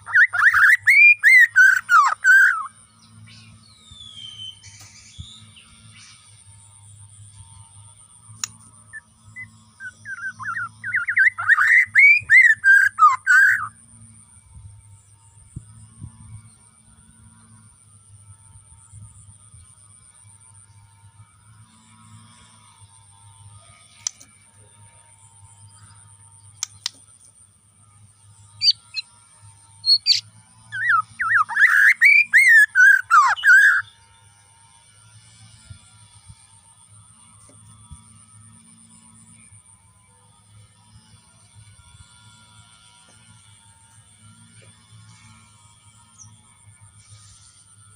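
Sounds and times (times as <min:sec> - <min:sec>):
bird singing whistled phrases: 0:00.0 - 0:02.7, 0:09.4 - 0:13.7, 0:29.8 - 0:30.2, 0:30.8 - 0:33.9.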